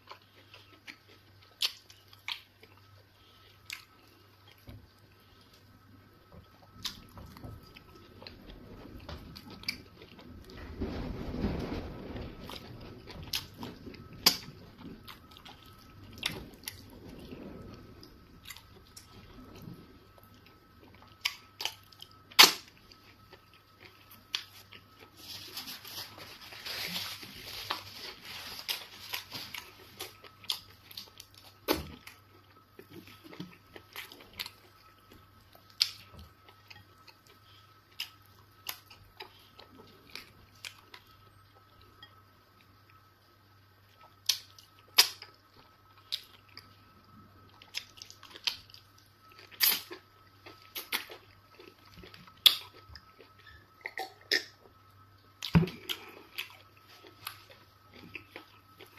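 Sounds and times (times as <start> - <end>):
person chewing food: 0.0 - 5.8, 47.4 - 54.7, 55.4 - 58.9
faint steady hum: 0.0 - 58.9.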